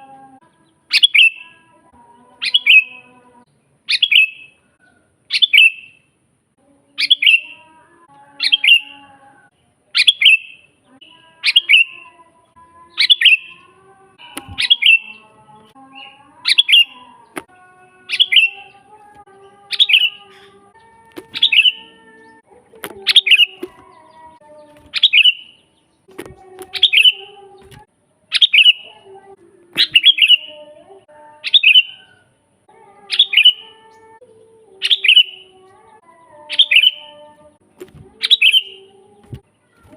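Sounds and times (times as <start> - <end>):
bird sharp falling chirp: 21.2 - 21.9, 29.8 - 30.4.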